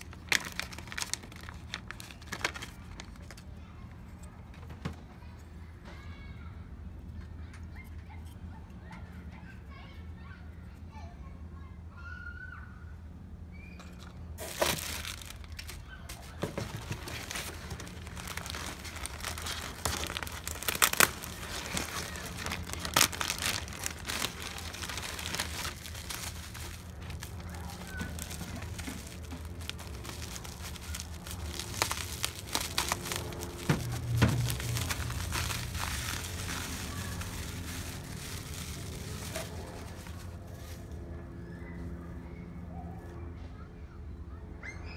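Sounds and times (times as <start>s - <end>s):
plastic packaging crinkling: 0.0s - 3.5s, 14.4s - 40.9s.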